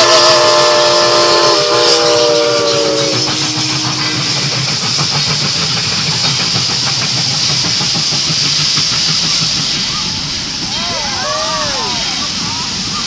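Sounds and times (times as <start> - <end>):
steam hiss: 0.0 - 13.0
train wheels clattering on rails: 1.1 - 13.0.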